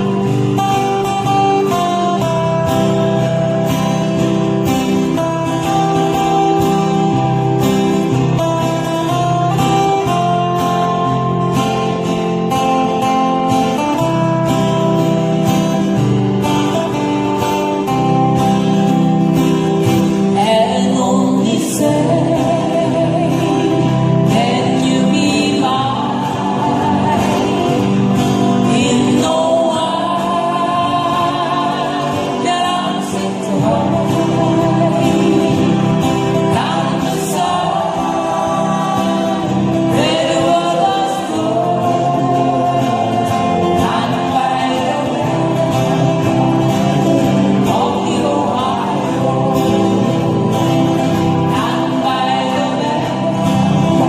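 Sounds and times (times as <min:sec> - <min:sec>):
strummed acoustic guitars: 0:00.0 - 0:54.0
person singing long notes: 0:20.3 - 0:54.0.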